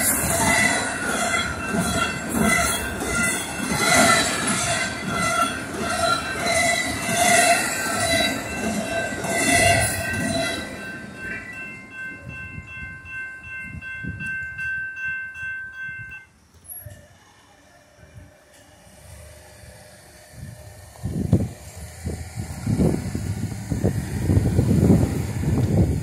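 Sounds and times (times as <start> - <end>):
railroad crossing bell ringing: 0.0 - 17.2
freight train cars rumbling: 0.0 - 26.0
squealing train wheels: 0.0 - 26.0.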